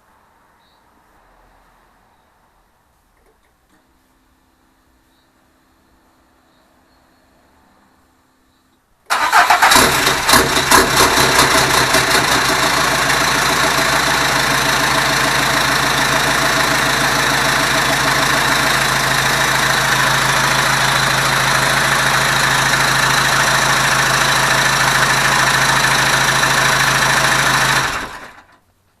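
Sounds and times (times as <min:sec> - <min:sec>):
diesel engine starting and idling: 0:09.1 - 0:28.6.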